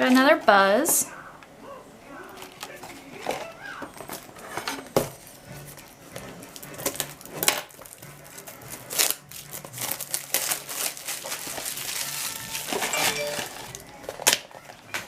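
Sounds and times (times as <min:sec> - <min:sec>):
packaging crinkling and tearing: 0:06.6 - 0:14.7.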